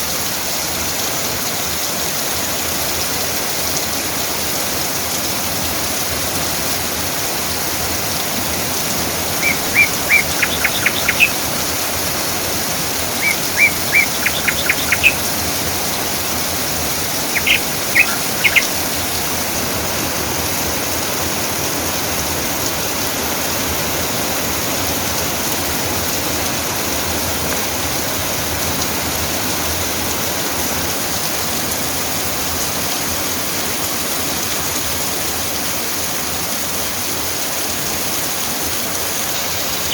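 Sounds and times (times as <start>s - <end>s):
steady rain falling: 0.0s - 39.9s
songbird calling high notes: 8.5s - 19.4s, 39.3s - 39.9s.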